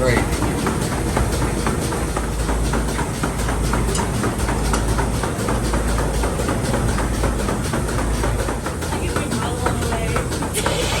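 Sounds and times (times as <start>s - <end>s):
farm machinery humming: 0.0s - 11.0s
rapid irregular clicking: 0.0s - 11.0s.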